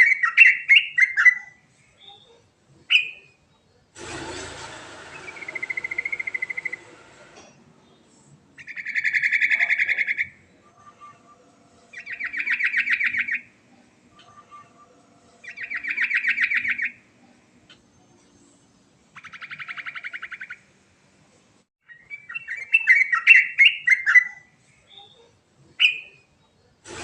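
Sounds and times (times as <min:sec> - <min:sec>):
bird singing trilling phrases: 0:00.0 - 0:03.7, 0:08.6 - 0:17.0, 0:19.2 - 0:20.7, 0:21.8 - 0:26.8
hiss: 0:04.0 - 0:08.3.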